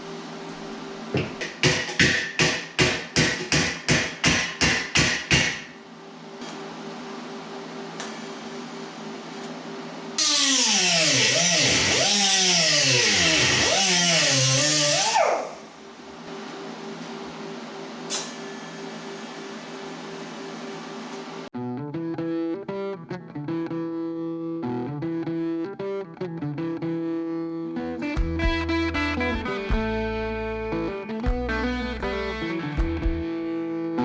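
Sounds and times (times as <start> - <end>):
grinder on metal: 10.2 - 15.6.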